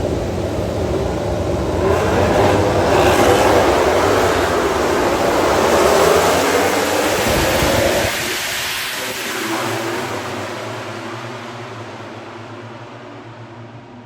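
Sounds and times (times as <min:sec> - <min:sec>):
racing motorcycles passing: 0:00.0 - 0:11.1.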